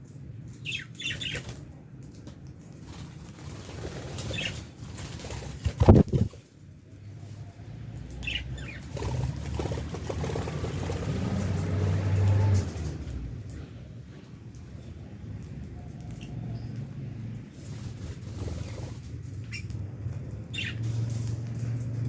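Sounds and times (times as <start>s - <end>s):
birds chirping: 0.1s - 1.8s, 3.0s - 12.9s, 14.6s - 21.8s
wing flapping: 2.7s - 6.7s, 8.3s - 13.2s, 17.5s - 21.8s.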